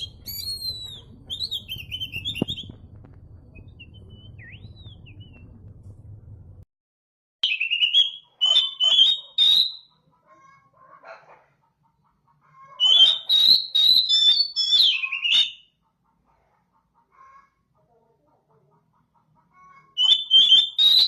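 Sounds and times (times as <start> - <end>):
bird singing whistled phrases: 0.0 - 2.8, 3.6 - 5.4, 7.4 - 9.9, 12.8 - 15.7, 20.0 - 21.0.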